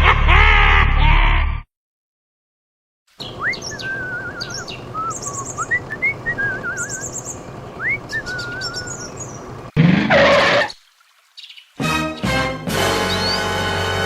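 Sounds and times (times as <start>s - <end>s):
high quick bird chirps: 3.2s - 9.5s
birds singing: 3.2s - 9.7s, 11.3s - 13.6s.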